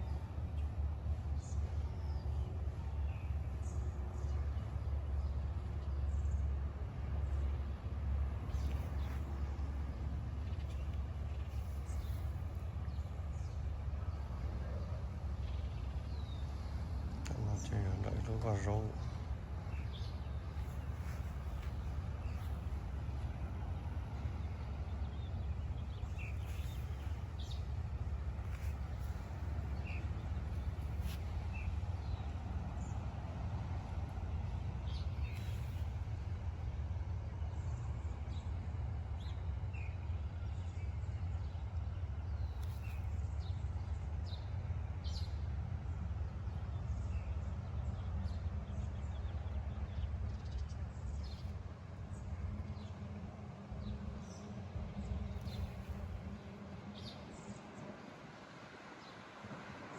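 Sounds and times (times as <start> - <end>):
low rumble: 7.2 - 38.7.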